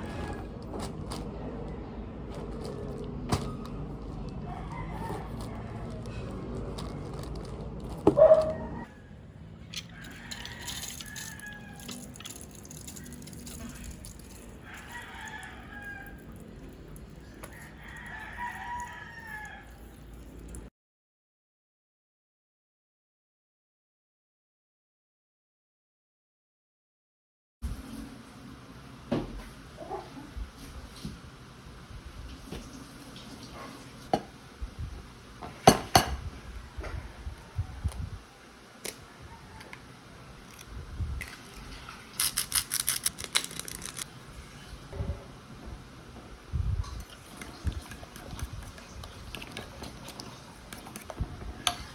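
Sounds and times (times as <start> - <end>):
rooster crowing: 4.2 - 6.4, 8.2 - 12.2, 14.6 - 16.4, 17.2 - 20.0, 39.0 - 39.9
sharp clicks of small objects: 42.2 - 44.1.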